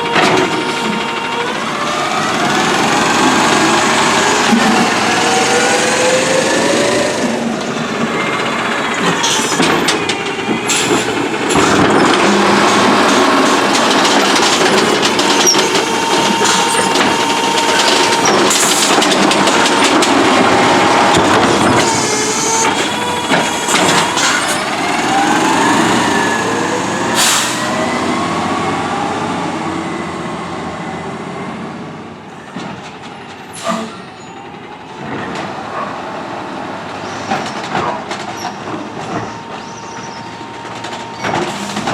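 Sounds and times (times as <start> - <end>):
hydraulic whine: 0.0 - 29.2
garbage truck engine: 0.0 - 41.9
air brake hisses: 27.2 - 27.7, 33.6 - 34.1.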